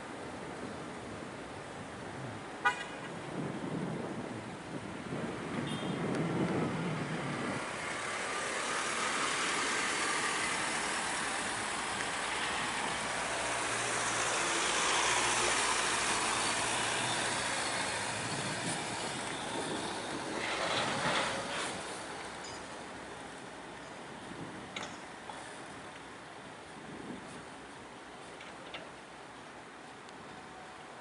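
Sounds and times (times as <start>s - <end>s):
heavy truck driving past: 6.6s - 22.8s.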